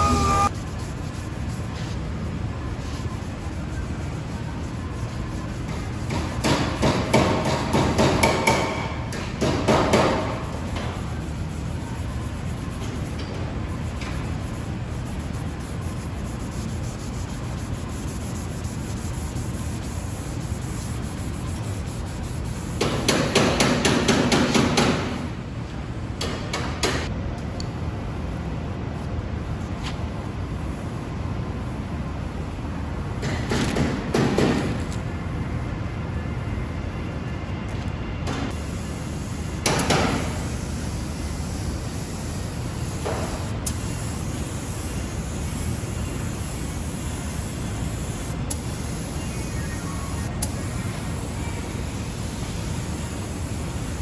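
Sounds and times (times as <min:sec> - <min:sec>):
steady low hum: 0:00.0 - 0:26.3, 0:27.0 - 0:54.0
rapid tapping on car bodywork: 0:05.6 - 0:11.4, 0:22.7 - 0:25.2, 0:33.2 - 0:34.8.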